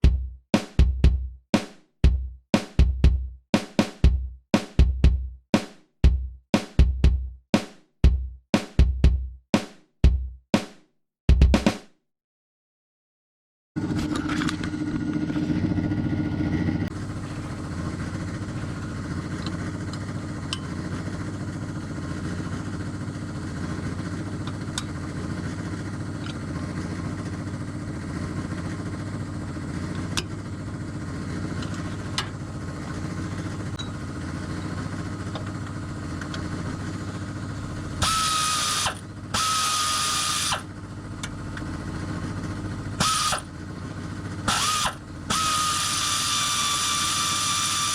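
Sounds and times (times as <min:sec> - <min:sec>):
low mechanical hum: 0:13.8 - 0:47.9
power tool whirring: 0:16.9 - 0:27.4, 0:30.8 - 0:47.9.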